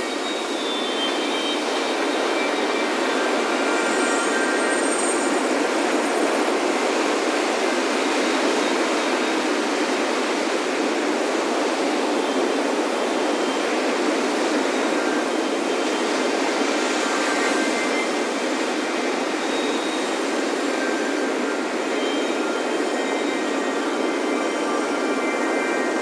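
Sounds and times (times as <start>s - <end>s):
faint wind chime tones: 0.0s - 7.2s
ocean waves breaking on beach: 0.0s - 26.0s.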